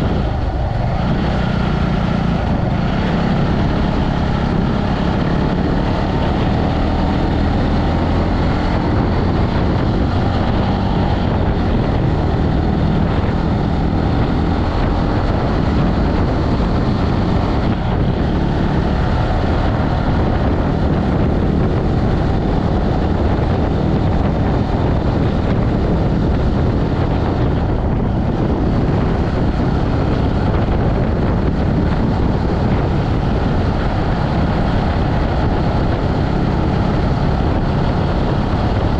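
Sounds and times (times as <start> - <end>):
motorbike engine running: 0.0 - 38.9
wind rumble on microphone: 0.0 - 38.9.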